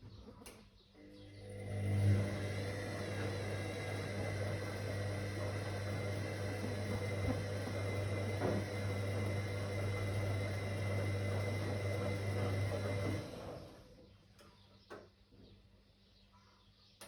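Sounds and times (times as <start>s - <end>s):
washing machine motor hum: 1.0s - 14.4s.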